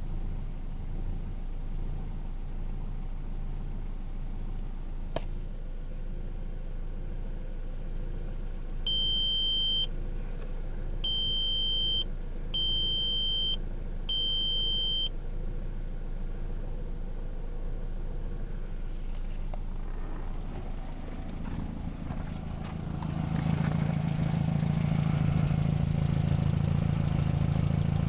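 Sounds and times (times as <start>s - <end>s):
car engine idling: 0.0s - 28.0s
electronic warning beeps: 8.9s - 9.9s, 11.0s - 15.1s.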